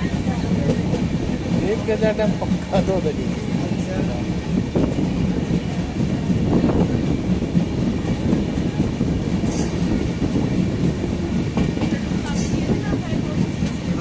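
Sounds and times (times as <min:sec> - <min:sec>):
train wheels rumbling on rails: 0:00.0 - 0:14.0
high squeal: 0:09.5 - 0:10.0.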